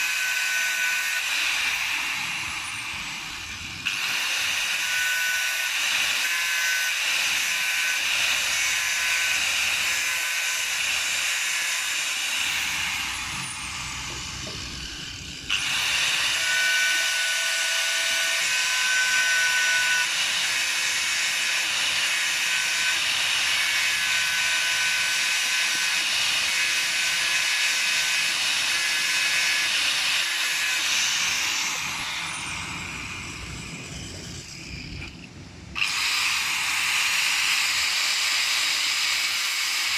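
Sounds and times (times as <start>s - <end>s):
electric power tool whining: 0.0s - 39.9s.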